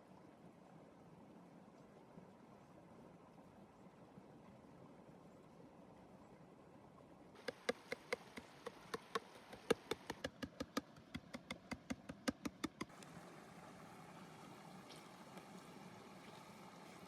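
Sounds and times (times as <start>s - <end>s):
sharp wooden knocks: 7.4s - 12.9s.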